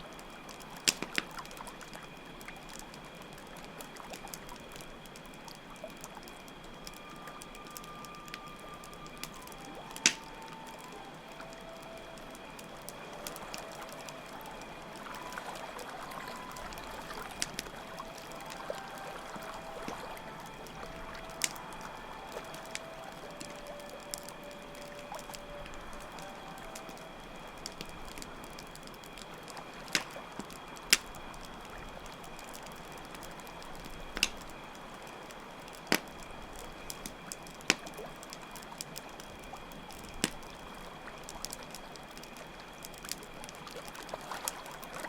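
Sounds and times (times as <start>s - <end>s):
campfire crackling and popping: 0.0s - 45.0s
crickets chirring: 0.0s - 45.0s
water trickling and pouring: 0.0s - 45.0s
soft flute notes: 6.5s - 32.6s.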